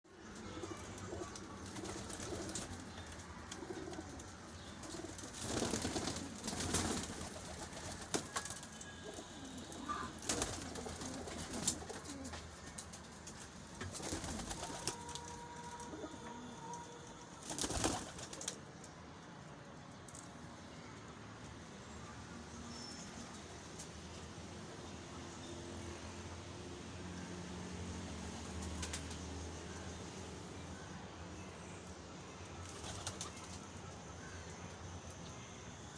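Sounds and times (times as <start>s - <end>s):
pigeons cooing: 0.4s - 12.8s.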